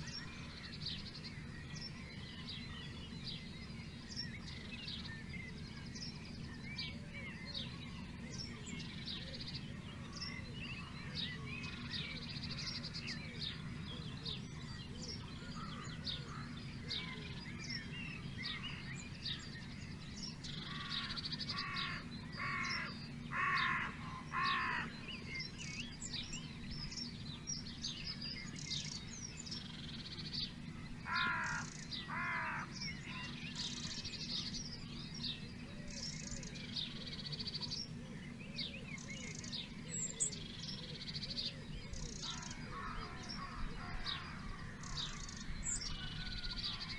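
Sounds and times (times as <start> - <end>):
small birds chirping and trilling: 0.0 - 46.9
loud harsh bird call: 20.5 - 25.3, 31.0 - 34.0.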